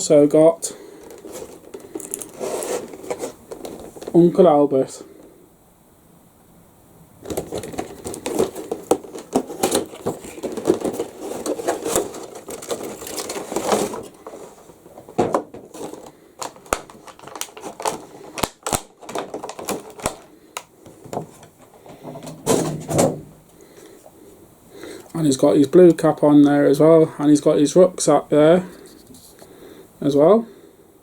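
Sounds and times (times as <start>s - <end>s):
packaging crackling rustles: 0.0s - 5.3s, 7.2s - 23.0s.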